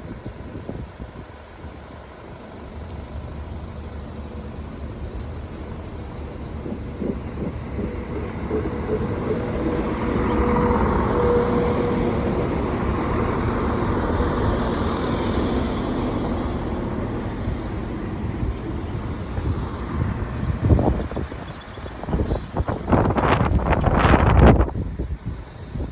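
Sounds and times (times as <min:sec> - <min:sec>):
train passing: 0:00.0 - 0:25.9.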